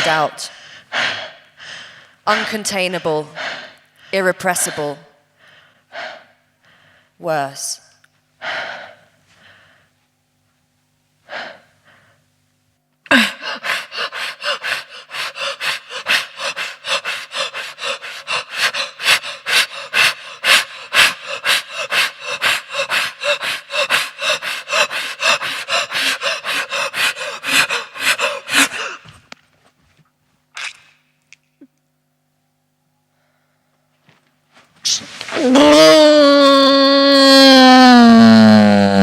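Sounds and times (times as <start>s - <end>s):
person breathing in rapid gasps: 0.5s - 2.5s, 3.2s - 7.2s, 8.4s - 9.9s, 13.1s - 29.2s.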